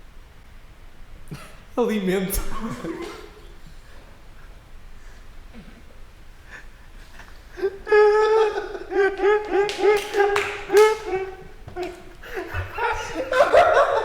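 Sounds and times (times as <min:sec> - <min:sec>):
person laughing high-pitched: 0:07.6 - 0:14.0.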